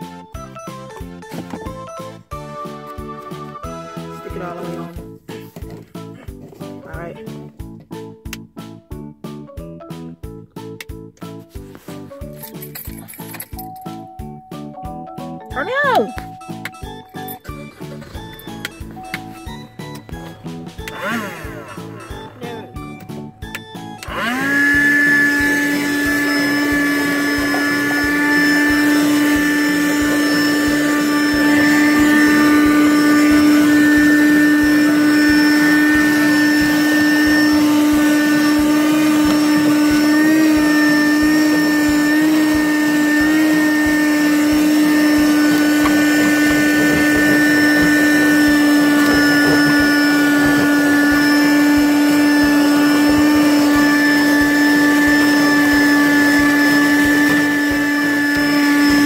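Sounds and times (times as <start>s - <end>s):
car vacuum motor whine: 16.6s - 59.0s.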